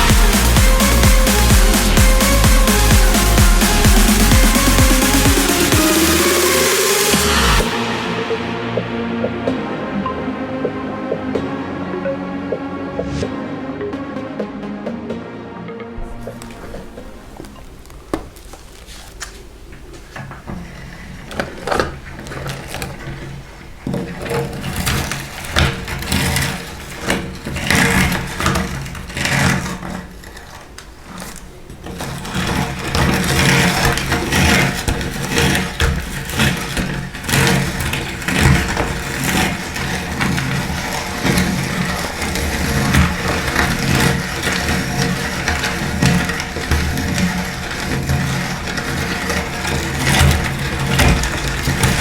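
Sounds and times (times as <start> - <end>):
dry food crunching: 16.0 - 52.0
meat grinder motor hum: 31.9 - 52.0.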